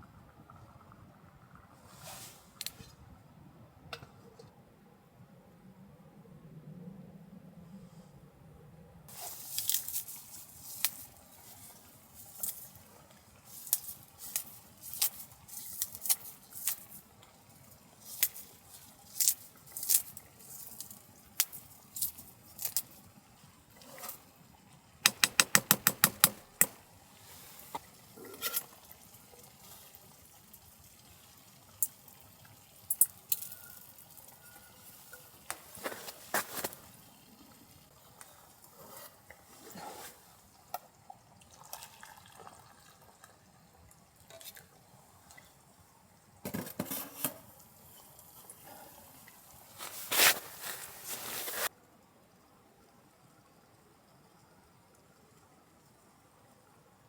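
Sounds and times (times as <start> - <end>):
sharp clicks: 25.0 - 26.8.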